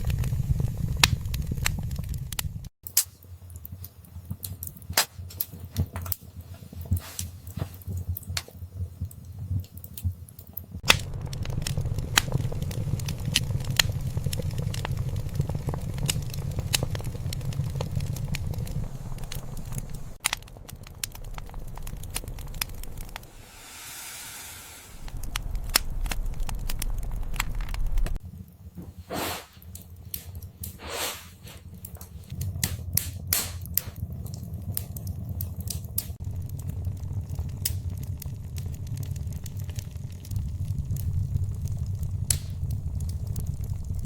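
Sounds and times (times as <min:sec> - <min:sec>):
wood fire crackling and popping: 0:00.0 - 0:23.8, 0:25.0 - 0:44.0
low rumble of burning: 0:00.0 - 0:44.0.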